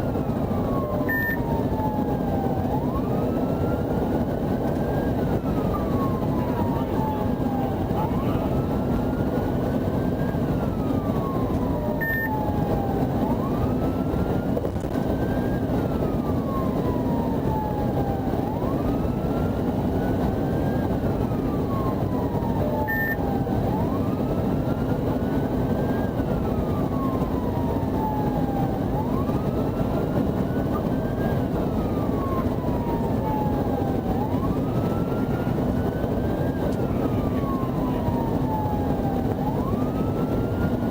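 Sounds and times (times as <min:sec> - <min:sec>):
police siren wailing: 0:00.0 - 0:40.9
road and engine noise: 0:00.0 - 0:40.9
short beeps: 0:01.1 - 0:01.4, 0:12.0 - 0:12.3, 0:22.9 - 0:23.2.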